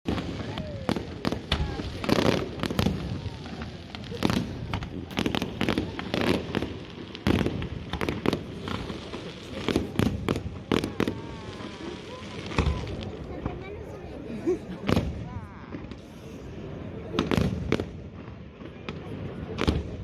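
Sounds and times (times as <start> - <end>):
fireworks bursting with sharp bangs: 0.1 - 20.0
fireworks rumble and crackle: 0.1 - 20.0.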